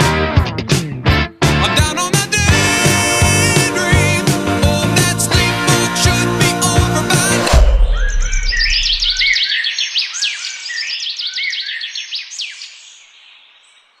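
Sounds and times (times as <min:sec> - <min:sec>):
music with low bass note: 0:00.0 - 0:09.3
songbird singing: 0:07.9 - 0:14.0.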